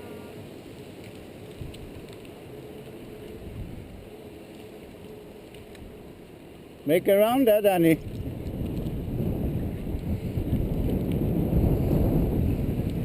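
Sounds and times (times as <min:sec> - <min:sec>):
wind noise on microphone: 0:01.5 - 0:02.3, 0:03.2 - 0:04.1, 0:07.7 - 0:13.0.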